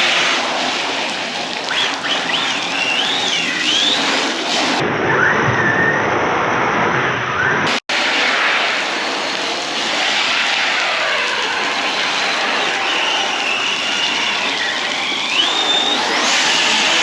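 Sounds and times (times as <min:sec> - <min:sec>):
steady hiss: 0:07.9 - 0:17.0
rc truck motor whining: 0:10.8 - 0:17.0.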